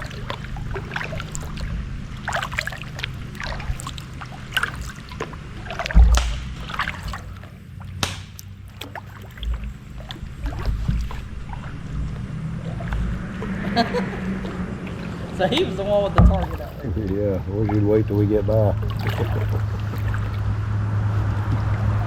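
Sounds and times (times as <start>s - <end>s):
paddle blades splashing: 0.0s - 22.0s
water dripping: 0.0s - 22.0s
low thump: 5.8s - 6.8s, 9.4s - 9.8s, 15.6s - 17.0s.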